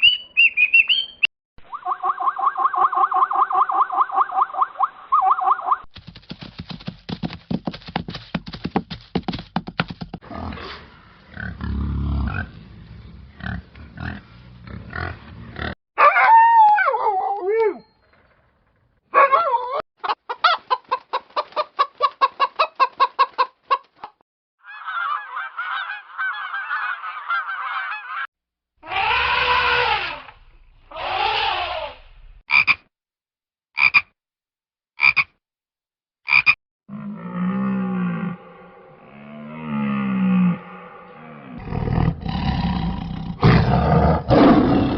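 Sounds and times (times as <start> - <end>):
farm animal calls: 24.7 - 32.0.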